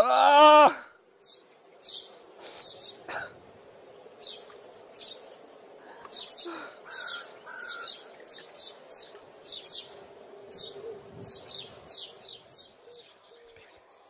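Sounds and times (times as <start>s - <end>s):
birds chirping: 0.4s - 14.0s
longer lower bird calls: 0.4s - 14.0s
steady low hum: 0.8s - 14.0s.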